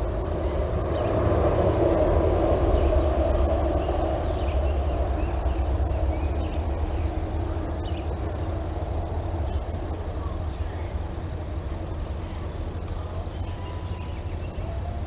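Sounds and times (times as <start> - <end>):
faint bird chirps: 9.4 - 15.0.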